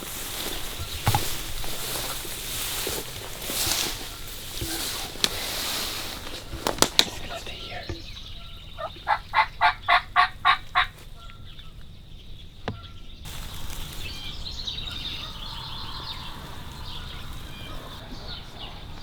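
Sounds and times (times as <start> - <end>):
turkey yelps: 8.3 - 11.4, 14.8 - 19.0.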